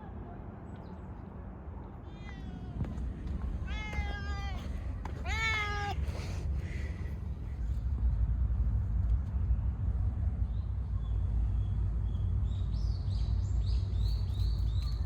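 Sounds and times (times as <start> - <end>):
cat meowing: 2.0 - 2.9, 3.6 - 6.0
low rumble: 6.0 - 15.0.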